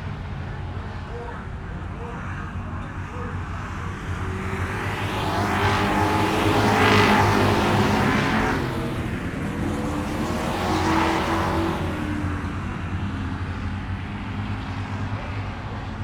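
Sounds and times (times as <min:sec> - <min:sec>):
car engine running: 0:04.0 - 0:12.3.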